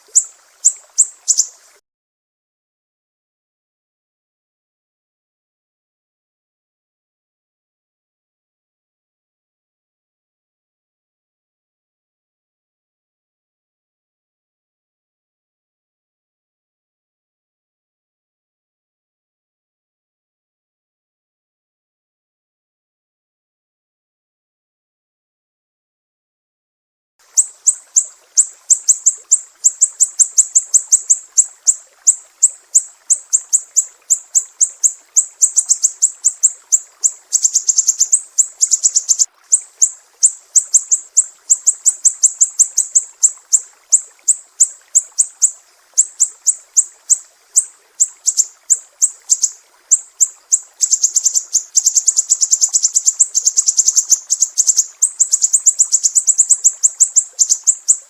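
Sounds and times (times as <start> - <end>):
songbird chirping and trilling: 0.0 - 1.8, 27.3 - 58.0.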